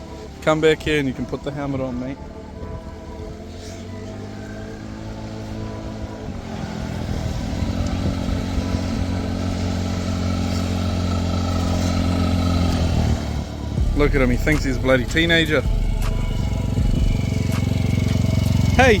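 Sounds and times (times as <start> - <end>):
small motorbike engine: 4.0 - 19.0.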